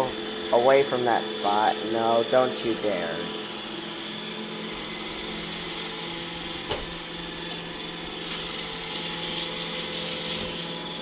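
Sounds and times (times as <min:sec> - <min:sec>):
robot vacuum whining: 0:00.0 - 0:11.0.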